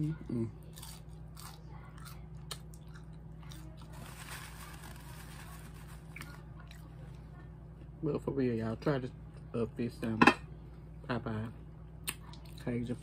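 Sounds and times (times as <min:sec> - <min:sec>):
steady low hum: 0:00.0 - 0:13.0
person chewing food: 0:00.6 - 0:03.9.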